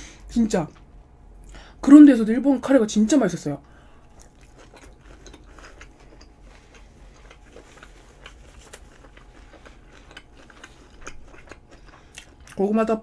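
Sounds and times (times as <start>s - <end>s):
chewing food: 3.7s - 13.0s.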